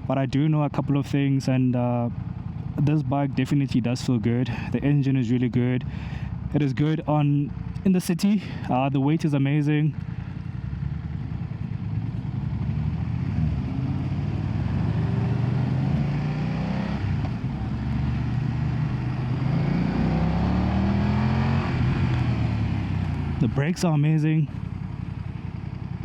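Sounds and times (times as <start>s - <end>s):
wind and road noise: 2.1s - 2.9s, 4.5s - 9.0s, 9.8s - 26.0s
motorcycle engine accelerating: 9.9s - 26.0s.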